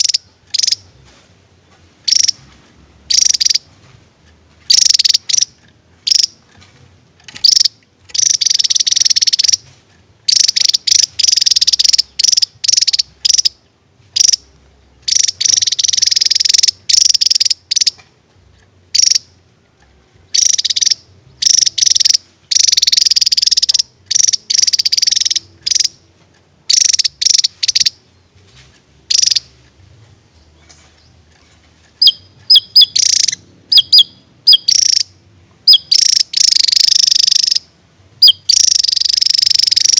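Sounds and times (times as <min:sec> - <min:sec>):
bird singing rapid high song: 0:00.0 - 0:01.2, 0:02.0 - 0:03.9, 0:04.6 - 0:06.6, 0:07.3 - 0:18.1, 0:18.9 - 0:19.4, 0:20.2 - 0:39.9.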